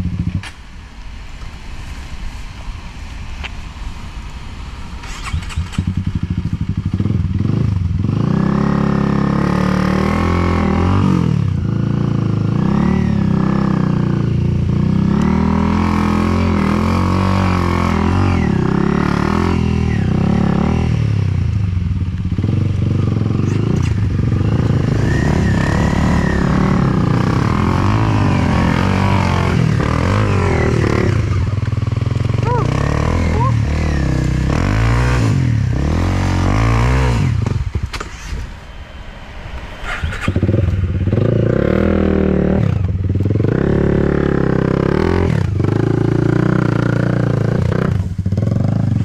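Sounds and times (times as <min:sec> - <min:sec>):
dirt bike engine revving: 0:05.0 - 0:11.3, 0:14.8 - 0:21.2, 0:22.4 - 0:38.6, 0:39.8 - 0:49.0.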